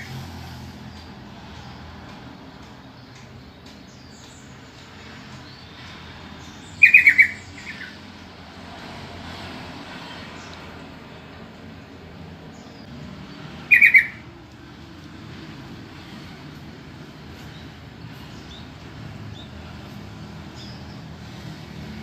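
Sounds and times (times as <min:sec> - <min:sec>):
bulbul call: 0:13.7 - 0:14.2.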